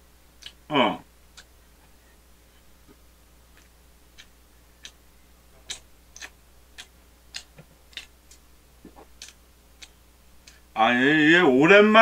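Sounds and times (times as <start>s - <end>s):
mouth chewing wetly: 0.4s - 0.7s, 1.3s - 1.6s, 3.5s - 10.7s.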